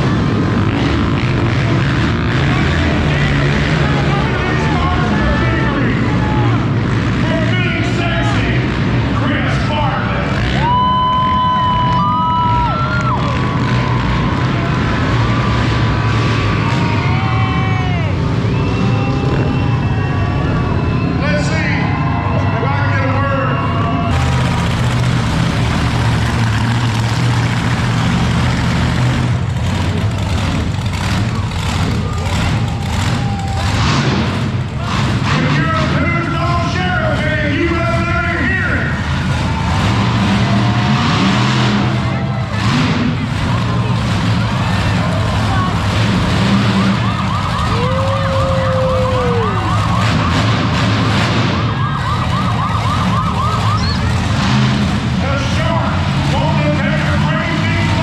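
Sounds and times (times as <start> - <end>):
loud steady low rumble: 0.0 - 58.0
monster truck engine droning: 0.0 - 58.0
warbling electronic siren: 49.2 - 50.7, 51.6 - 54.4.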